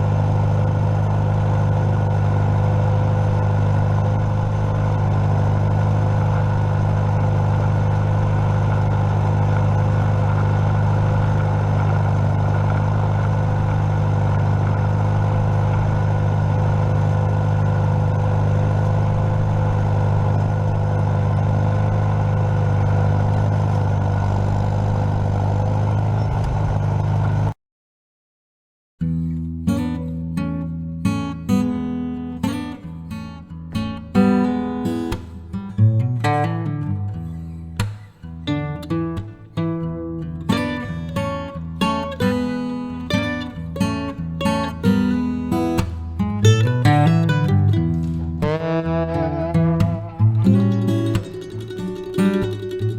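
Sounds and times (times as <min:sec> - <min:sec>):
strummed acoustic guitar music: 0:00.0 - 0:23.3, 0:29.0 - 0:52.9
tractor engine running: 0:00.0 - 0:27.5, 0:38.8 - 0:52.9.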